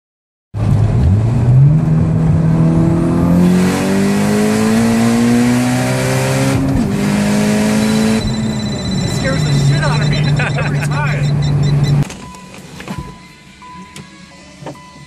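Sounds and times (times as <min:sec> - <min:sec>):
car engine accelerating hard: 0:00.6 - 0:12.0.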